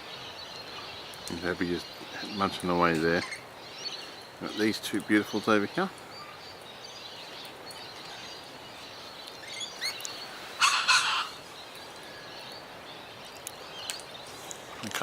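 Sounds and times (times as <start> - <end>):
birds chirping: 0.0 - 15.0
steady outdoor hiss: 0.0 - 15.0
harsh bird call: 9.5 - 11.4.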